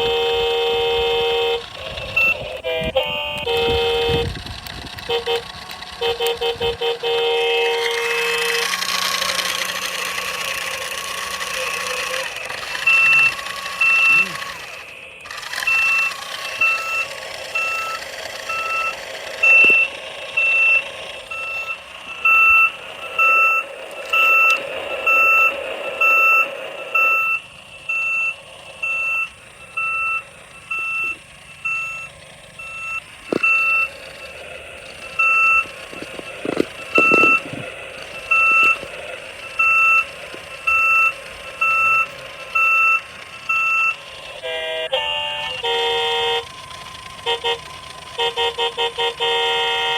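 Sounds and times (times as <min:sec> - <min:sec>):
toy reversing beeper: 0:00.0 - 0:49.9
clicks: 0:15.2 - 0:20.4, 0:32.9 - 0:43.2.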